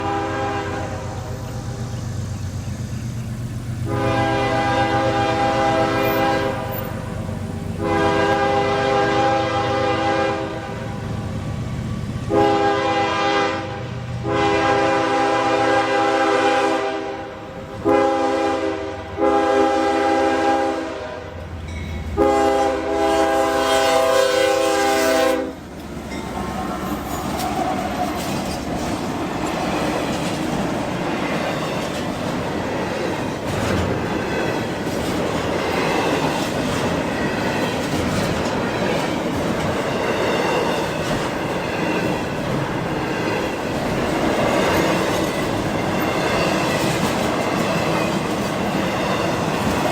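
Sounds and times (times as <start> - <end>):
locomotive air horn blasts: 0.0 - 1.2, 3.8 - 7.0, 7.8 - 11.1, 12.2 - 25.7
locomotive engine rumble: 0.0 - 15.5, 21.3 - 49.9
train cars rolling past: 0.0 - 49.9.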